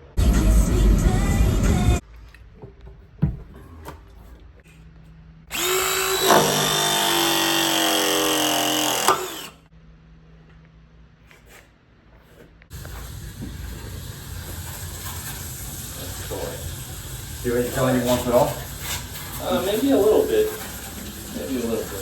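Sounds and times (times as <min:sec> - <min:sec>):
power drill running: 0:05.5 - 0:09.7.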